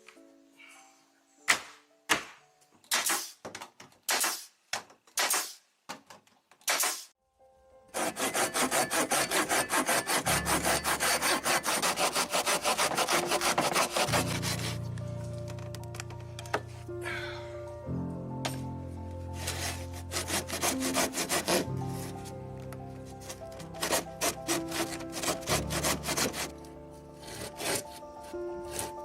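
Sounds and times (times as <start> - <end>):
wood being sawn: 7.9 - 14.9, 19.4 - 22.3, 23.2 - 29.0.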